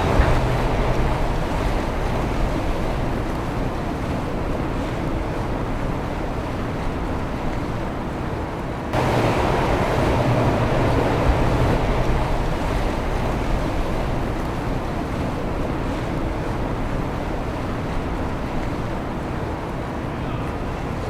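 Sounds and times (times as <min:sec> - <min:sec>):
low engine hum: 0:00.0 - 0:05.0, 0:09.0 - 0:17.2
boat engines: 0:00.0 - 0:21.0
water wash: 0:00.0 - 0:21.0
wind on microphone: 0:09.0 - 0:15.3.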